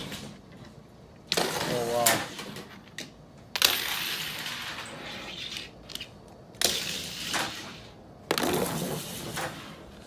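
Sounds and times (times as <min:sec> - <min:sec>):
plastic toy cars crashing: 0:01.3 - 0:02.7, 0:06.6 - 0:09.8.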